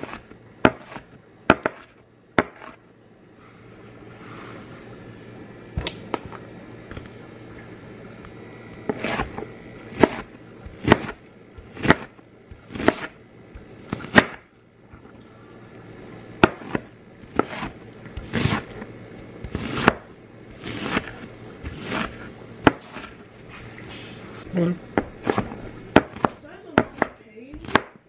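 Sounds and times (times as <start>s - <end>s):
knife slicing onion: 0.0s - 2.8s, 8.8s - 14.5s, 16.4s - 23.2s, 25.0s - 28.0s.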